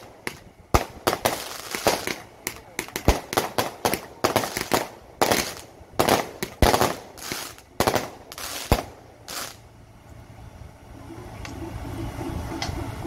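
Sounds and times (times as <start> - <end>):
firecrackers banging: 0.0 - 9.7.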